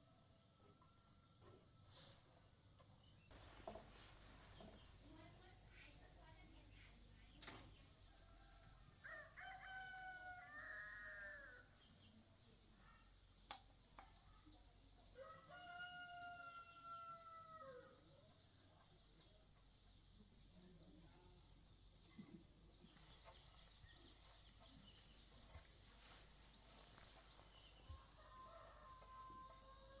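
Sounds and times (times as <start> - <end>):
rooster crowing: 8.4 - 11.6, 15.2 - 18.0, 28.0 - 30.0.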